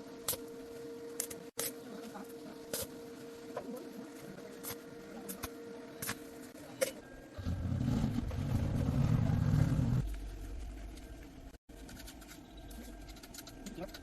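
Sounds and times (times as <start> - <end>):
engine rumbling: 7.4 - 11.6.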